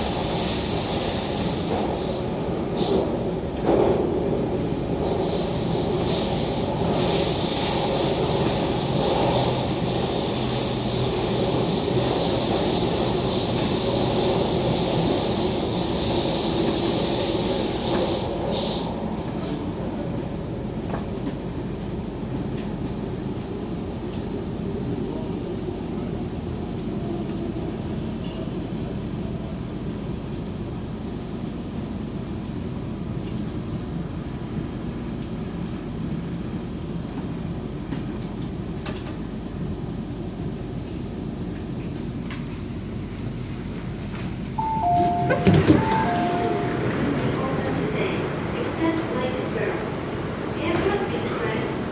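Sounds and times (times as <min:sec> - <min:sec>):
train wheel squeal: 0:04.1 - 0:19.7, 0:44.2 - 0:47.3
train running rumble: 0:26.4 - 0:51.9.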